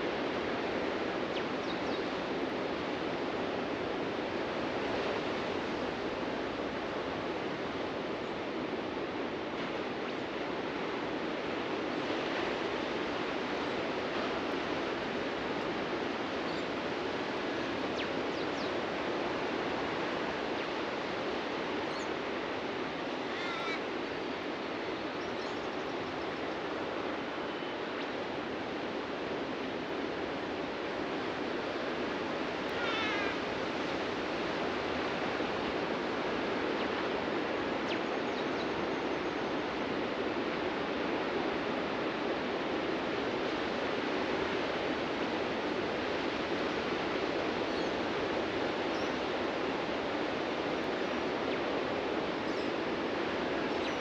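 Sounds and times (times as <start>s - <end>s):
faint bird chirps: 23.2s - 23.8s
birds calling: 23.2s - 24.0s, 32.7s - 33.4s.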